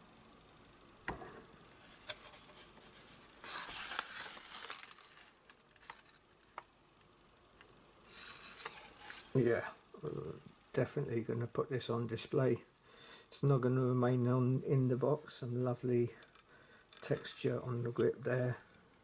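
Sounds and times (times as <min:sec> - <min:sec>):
packaging rustling: 0:01.7 - 0:06.8, 0:08.1 - 0:09.4.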